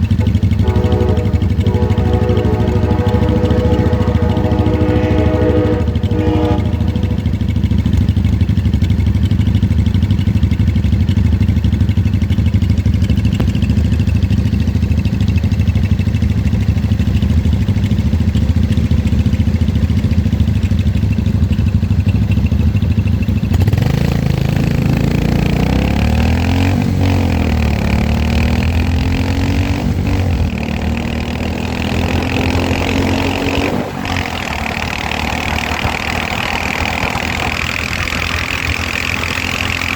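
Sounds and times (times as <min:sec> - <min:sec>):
motorcycle engine: 0:00.0 - 0:39.9
wind rumble: 0:29.7 - 0:39.4.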